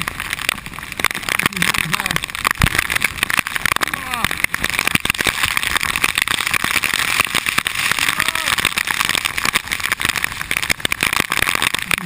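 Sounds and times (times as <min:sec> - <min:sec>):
heavy rain on camera housing: 0:00.0 - 0:12.0.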